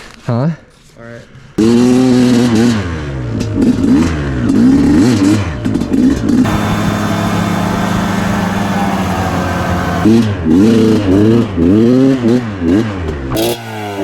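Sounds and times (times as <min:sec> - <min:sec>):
dirt bike engine revving: 0:06.3 - 0:10.9.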